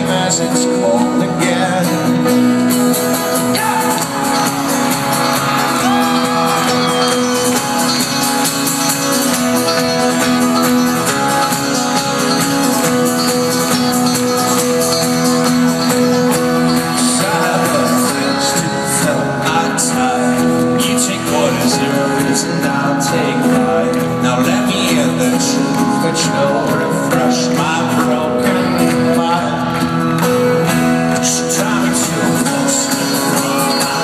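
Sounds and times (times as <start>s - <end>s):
crowd voices: 0.0s - 34.0s
folk-rock band playing: 0.0s - 34.0s.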